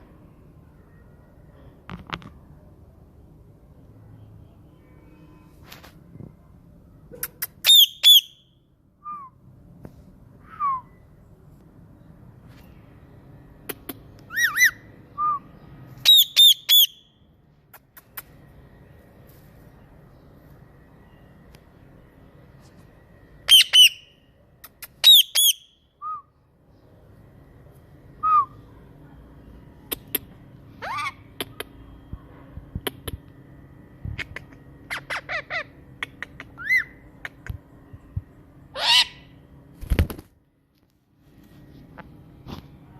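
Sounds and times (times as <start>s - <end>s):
parrot squawk: 7.6s - 8.4s, 14.3s - 14.8s, 25.0s - 25.7s, 30.8s - 31.3s, 34.9s - 35.8s, 36.5s - 37.0s, 38.7s - 39.3s
parrot whistle: 7.6s - 8.4s, 25.0s - 26.3s, 28.2s - 28.6s
parrot whistling: 7.6s - 8.4s, 28.2s - 28.6s.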